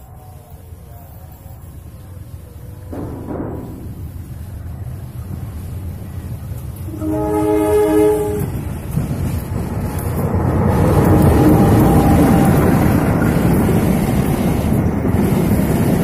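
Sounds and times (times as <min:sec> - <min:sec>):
locomotive engine and wheels rumbling: 0:00.0 - 0:16.0
locomotive horn: 0:06.9 - 0:08.7.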